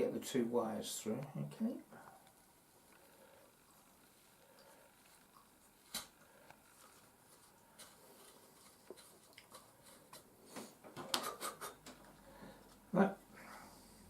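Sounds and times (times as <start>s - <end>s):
rustling: 2.2s - 13.3s.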